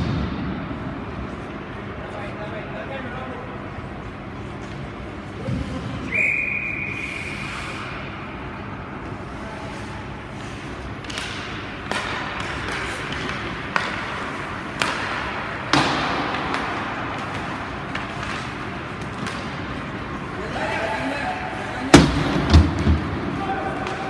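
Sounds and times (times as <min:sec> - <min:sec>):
skates hissing on ice: 0:06.9 - 0:08.0
sharp knocks of sticks and puck: 0:10.9 - 0:20.2, 0:21.9 - 0:24.0.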